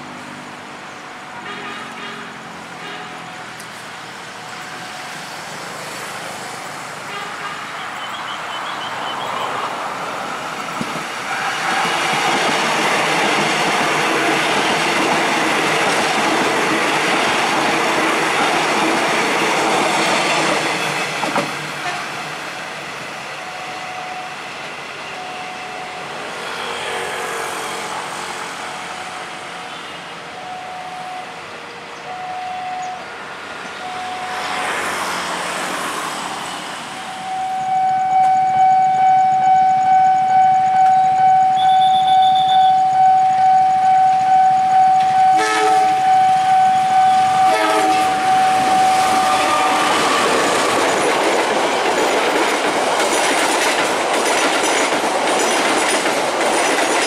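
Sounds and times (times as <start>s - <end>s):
electric train passing: 0.0s - 7.1s, 7.8s - 57.0s
level crossing warning bell: 25.0s - 26.3s, 29.0s - 31.4s, 32.0s - 33.1s, 33.8s - 34.9s, 36.9s - 50.4s.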